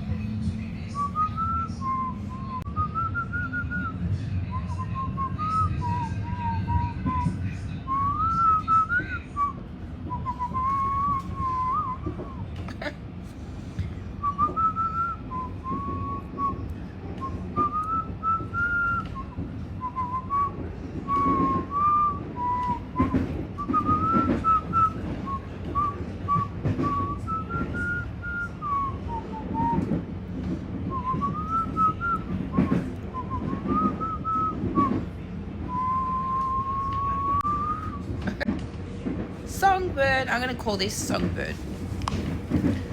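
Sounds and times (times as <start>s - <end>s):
train carriage rumble: 0.0s - 42.9s
person whistling a tune: 7.9s - 12.4s, 14.2s - 16.6s, 17.2s - 29.9s, 30.9s - 35.0s, 35.7s - 38.4s.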